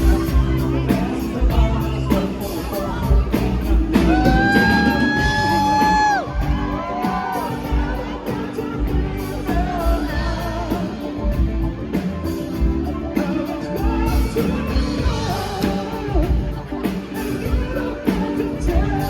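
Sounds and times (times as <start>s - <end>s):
lead vocal singing: 0.0s - 19.0s
live rock band playing: 0.0s - 19.0s.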